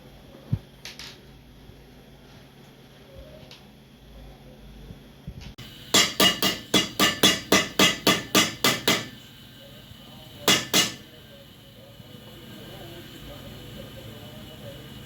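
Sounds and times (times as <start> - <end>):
hammer striking boot sole: 6.0 - 9.1, 10.5 - 11.0.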